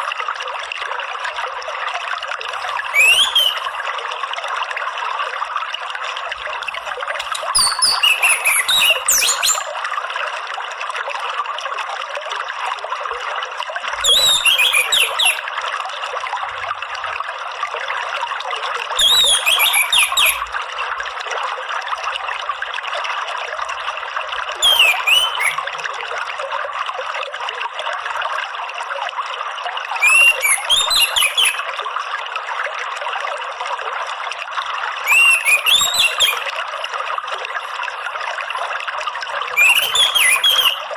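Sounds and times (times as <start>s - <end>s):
trickle of running water: 0.0s - 40.9s
thrush singing whistles: 2.7s - 3.7s, 7.2s - 9.7s, 14.0s - 15.4s, 19.0s - 20.4s, 24.6s - 25.6s, 30.0s - 31.6s, 35.1s - 36.4s, 39.6s - 40.9s.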